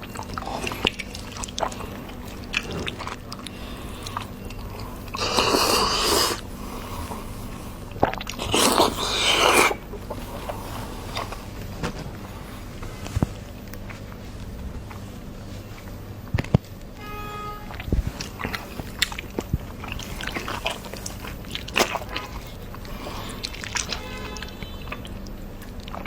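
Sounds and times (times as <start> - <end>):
chewing pork fat: 0.0 - 16.9, 17.7 - 26.0.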